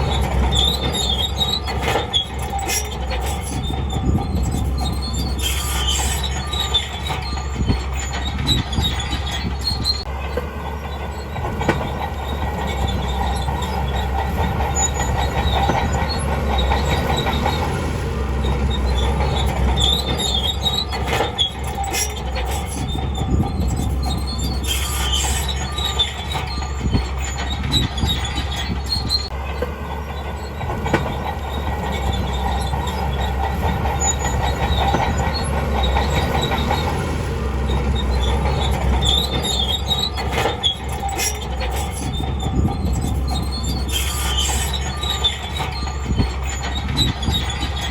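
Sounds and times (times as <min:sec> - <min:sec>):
bulldozer tracks squealing and clanking: 0:00.0 - 0:47.9
diesel engine running: 0:00.0 - 0:47.9.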